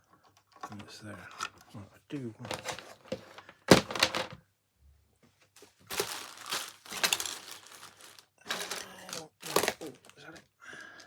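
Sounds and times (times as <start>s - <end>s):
rustling and knocking of parts: 0.0s - 1.8s, 2.4s - 4.4s, 5.2s - 10.5s
rustling and clicking: 2.5s - 4.4s, 5.6s - 10.2s.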